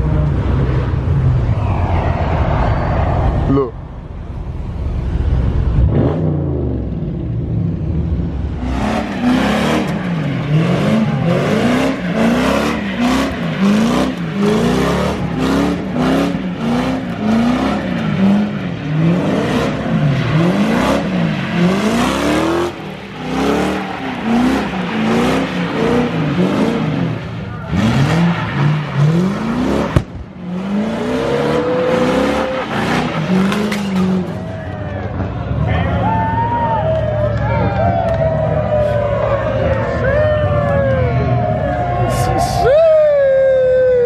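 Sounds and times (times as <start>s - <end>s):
low engine rumble: 0.0s - 44.0s
car engine revving hard: 5.7s - 7.2s, 8.6s - 34.4s.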